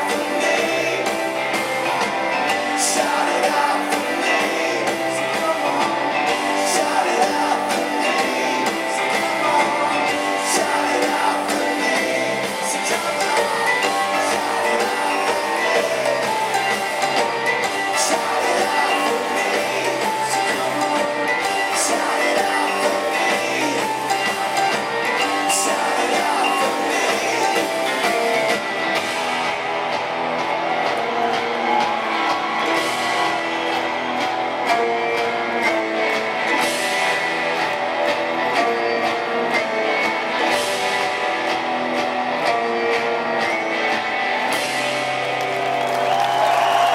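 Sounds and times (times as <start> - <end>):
person singing: 0.0 - 29.2
rock band playing live: 0.0 - 46.9
strummed guitars: 0.0 - 46.9.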